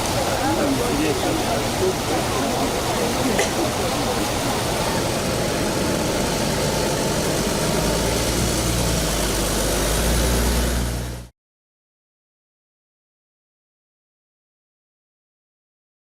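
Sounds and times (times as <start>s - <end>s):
vehicle engine idling: 0.0s - 11.3s.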